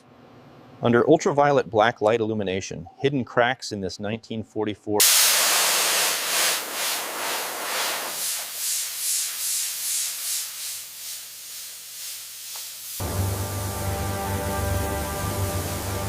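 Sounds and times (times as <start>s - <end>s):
hiss: 5.0s - 16.0s
background music: 13.0s - 16.0s.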